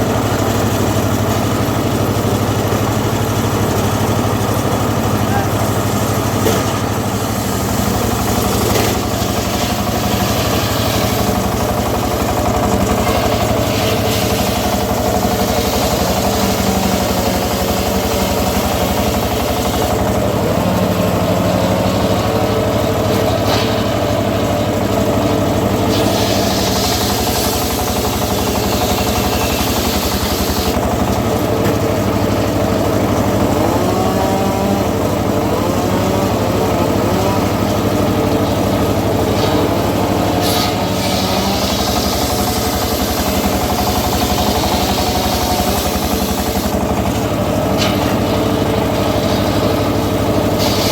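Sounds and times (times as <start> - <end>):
sawmill engine running: 0.0 - 50.9.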